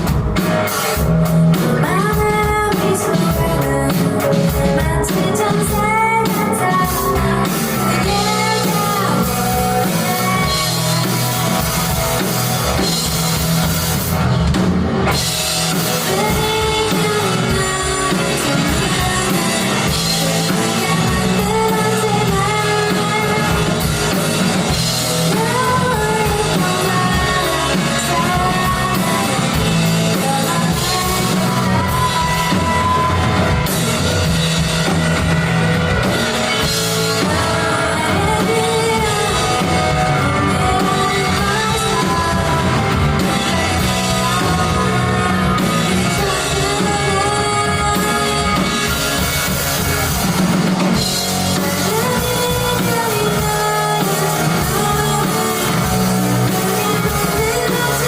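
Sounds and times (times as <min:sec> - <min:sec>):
person singing: 0:00.0 - 0:14.2, 0:15.1 - 0:58.0
drum kit: 0:00.0 - 0:58.0
guitar: 0:00.0 - 0:58.0.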